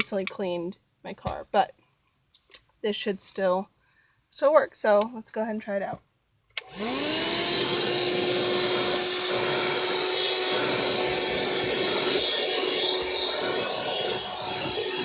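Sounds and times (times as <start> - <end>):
handheld vacuum motor whine: 6.6 - 15.0.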